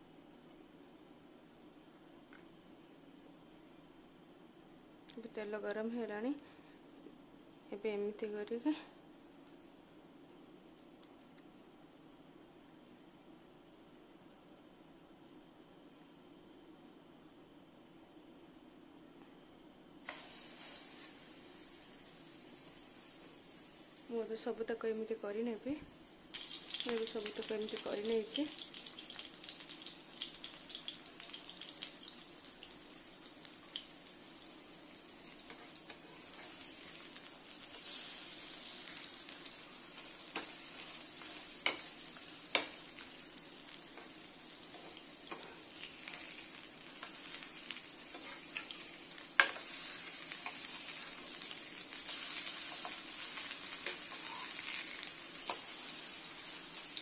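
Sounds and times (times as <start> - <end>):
patties sizzling in oil: 20.0 - 25.4, 26.1 - 57.0.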